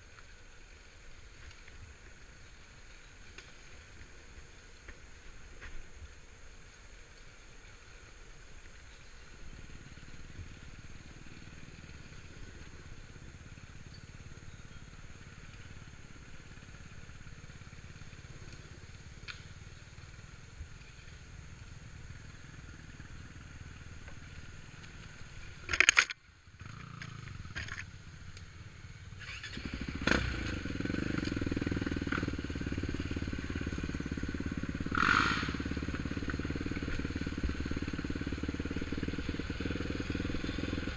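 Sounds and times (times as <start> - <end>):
atv engine running: 0.0 - 40.9
sharp clicks: 25.6 - 26.2.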